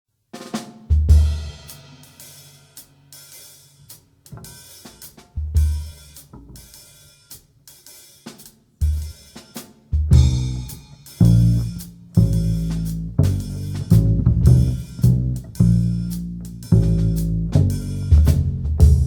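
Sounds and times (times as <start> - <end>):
cymbal and hi-hat strokes: 0.5 - 19.0
heavy low drum accents: 0.9 - 2.1, 4.4 - 6.8, 8.8 - 19.0.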